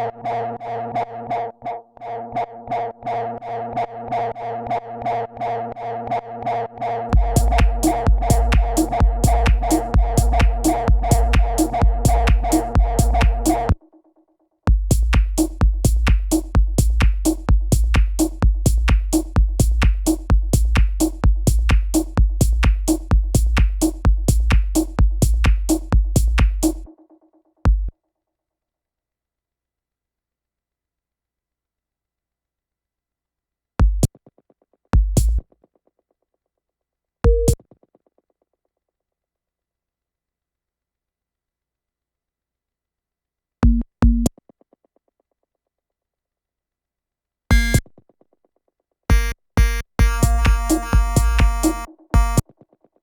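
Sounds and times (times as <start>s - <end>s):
techno kick drum and hi-hats: 7.1s - 13.8s, 14.7s - 26.9s, 27.7s - 27.9s, 33.8s - 34.1s, 35.0s - 35.5s, 37.3s - 37.6s, 43.6s - 44.3s, 47.5s - 47.9s, 49.1s - 52.5s
short repeating electronic tone: 47.5s - 47.8s, 49.1s - 52.4s.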